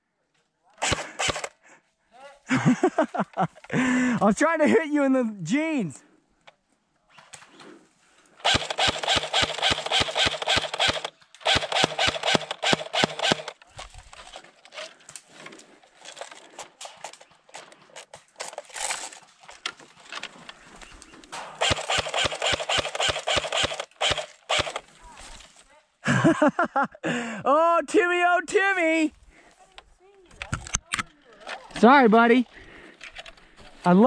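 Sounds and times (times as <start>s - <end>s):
airsoft guns firing bursts: 0.8s - 1.5s, 8.4s - 13.6s, 21.5s - 24.8s.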